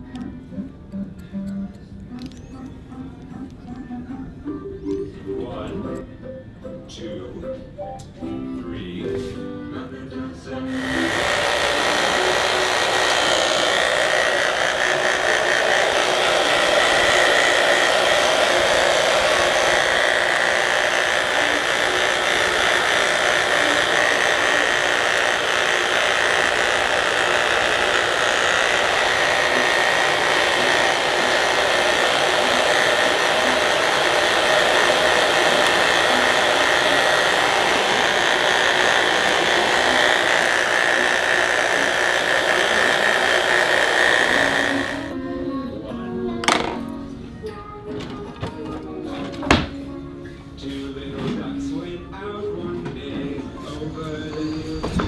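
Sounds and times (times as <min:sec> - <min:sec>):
hair dryer running: 0:10.7 - 0:45.2, 0:46.4 - 0:46.9.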